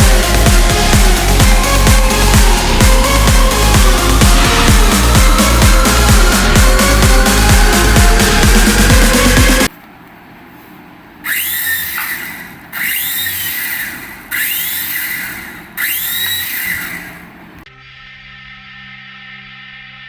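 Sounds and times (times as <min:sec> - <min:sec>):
toy electronic hiss and whine: 0:11.2 - 0:20.0.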